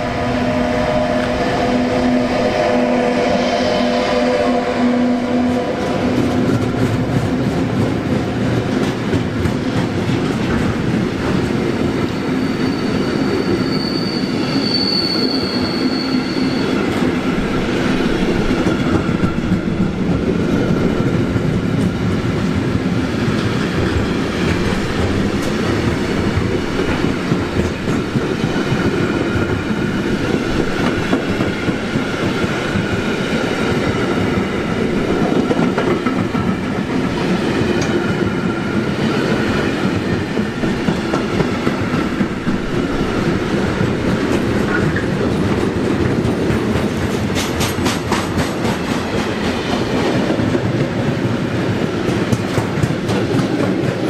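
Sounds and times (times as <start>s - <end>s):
train wheels rumbling: 0.0s - 54.0s
clickety-clack over rail joints: 5.5s - 12.2s, 16.9s - 54.0s
high wheel squeal: 12.1s - 19.5s.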